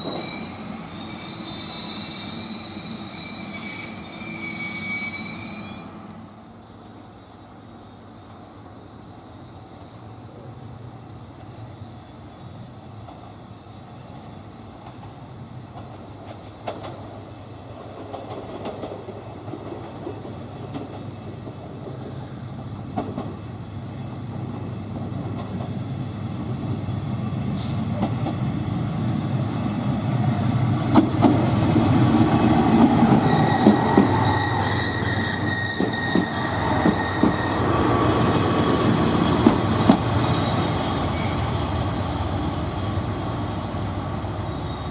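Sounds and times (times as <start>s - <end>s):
high wheel squeal: 0.0s - 6.0s, 32.4s - 43.2s, 44.2s - 44.9s
train on rails: 0.0s - 44.9s
wheels clicking over rail joints: 38.4s - 42.4s.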